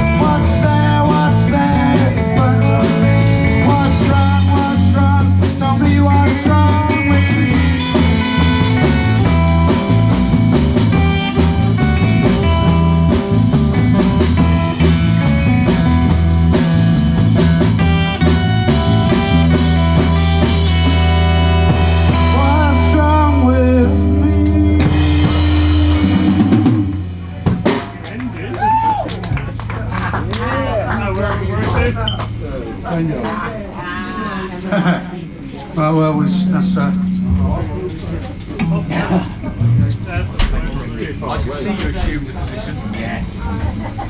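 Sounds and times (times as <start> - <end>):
pulsing bass line: 0.0 - 28.0, 36.0 - 40.4
live rock band playing: 0.0 - 32.9, 35.2 - 40.6.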